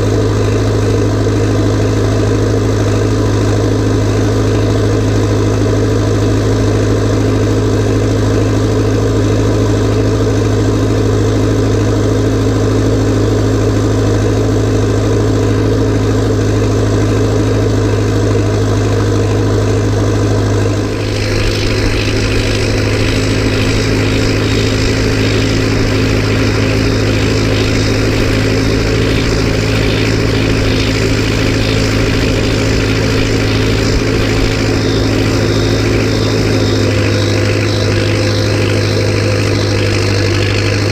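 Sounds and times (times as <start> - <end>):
tractor diesel engine running: 0.0 - 40.9
wavering high whine: 17.9 - 40.9.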